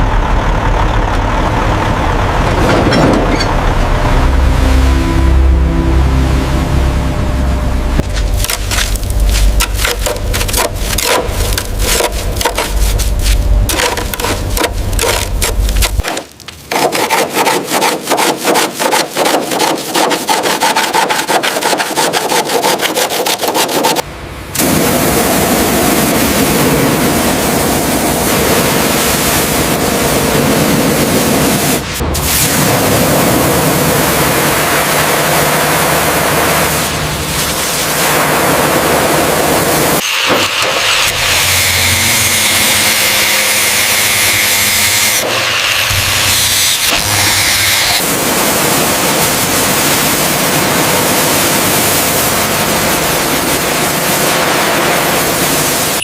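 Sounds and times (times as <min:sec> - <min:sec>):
rubbing scraping strokes: 0:08.2 - 0:24.0.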